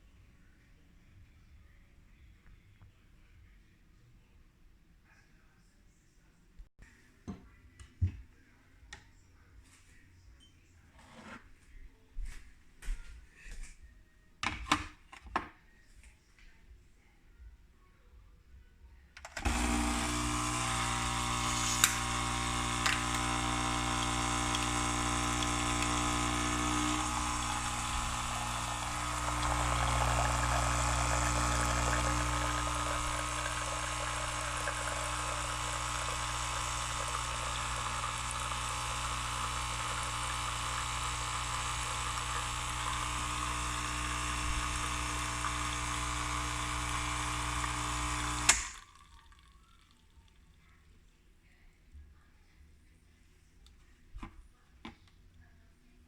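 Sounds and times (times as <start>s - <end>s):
coffee machine pump humming: 19.2s - 49.9s.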